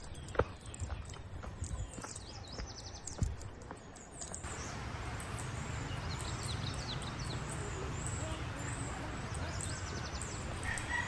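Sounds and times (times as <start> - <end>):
birds chirping: 0.0 - 11.0
steady rushing noise: 4.4 - 11.0.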